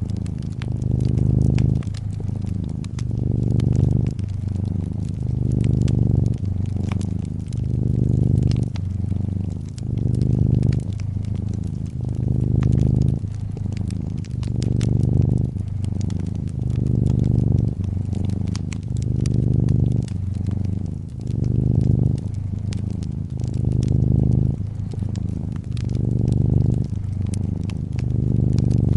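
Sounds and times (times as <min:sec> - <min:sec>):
cat purring: 0:00.0 - 0:28.9
fireplace crackling: 0:00.0 - 0:28.9.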